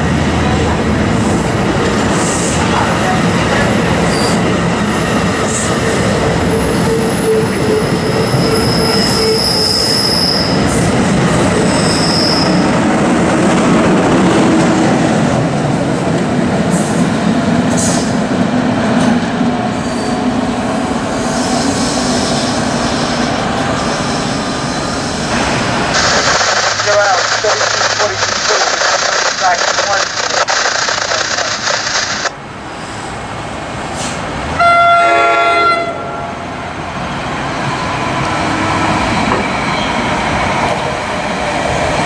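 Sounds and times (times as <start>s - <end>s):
train wheels running on rails: 0.0s - 32.3s.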